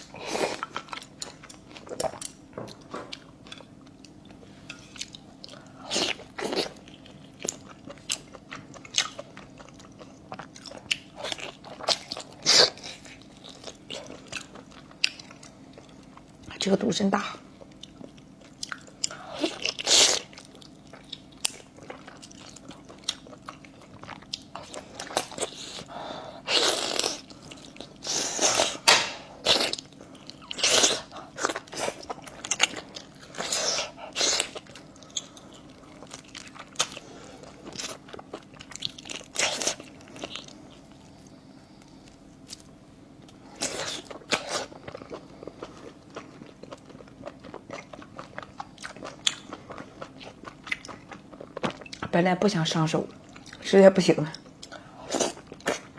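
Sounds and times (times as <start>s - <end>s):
chewing and crunchy bites: 0.0s - 16.5s, 17.6s - 52.2s, 54.4s - 55.9s.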